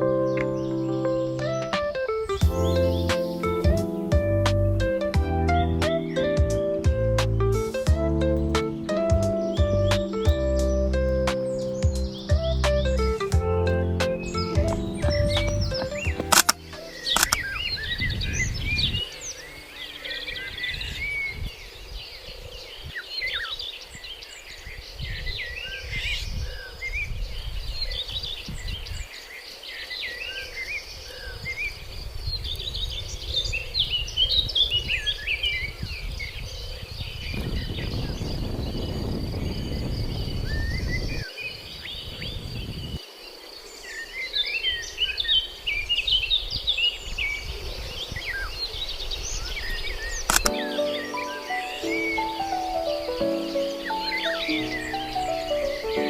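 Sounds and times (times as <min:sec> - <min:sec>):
birds chirping and calling: 0:00.1 - 0:04.1, 0:07.5 - 0:29.2, 0:43.8 - 0:56.0.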